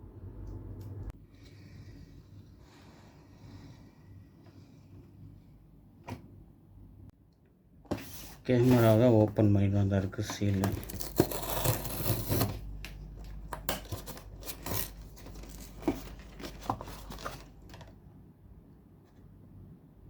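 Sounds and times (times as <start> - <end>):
box packaging being opened: 10.2 - 18.0.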